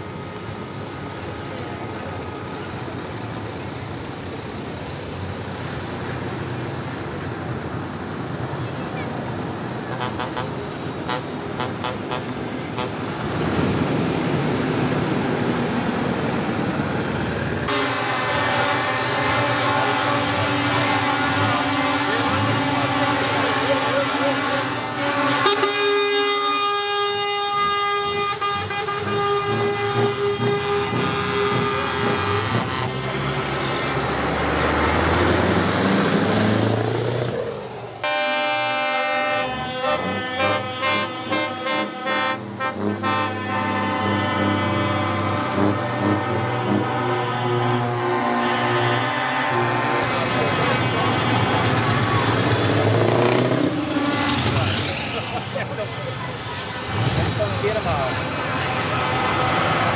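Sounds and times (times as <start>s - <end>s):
truck engines passing: 0.0s - 59.9s
horn toot: 9.9s - 13.0s, 17.7s - 33.7s, 38.0s - 55.5s
truck air horn blast: 9.9s - 13.0s, 17.6s - 35.0s, 38.0s - 55.2s, 56.2s - 59.9s.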